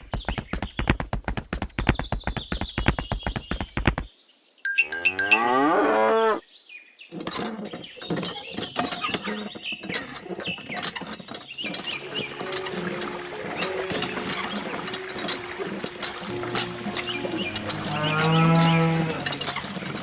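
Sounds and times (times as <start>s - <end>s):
cow mooing: 4.9s - 6.4s, 12.2s - 19.4s.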